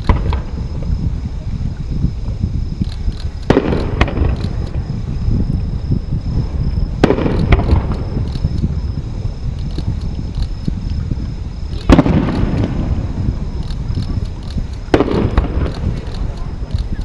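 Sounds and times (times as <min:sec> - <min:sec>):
firework shells bursting: 0:00.0 - 0:00.9, 0:02.8 - 0:05.1, 0:06.4 - 0:08.8, 0:09.4 - 0:17.0.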